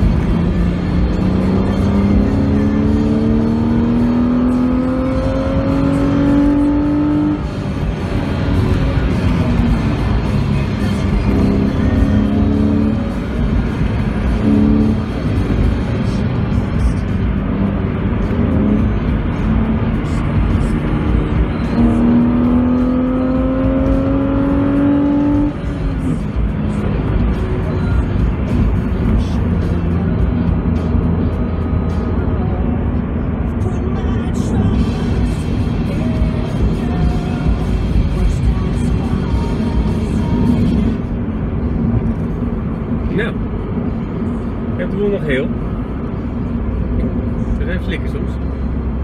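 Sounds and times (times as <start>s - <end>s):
car engine accelerating: 0.0s - 49.0s
road and tyre rumble: 0.0s - 49.0s.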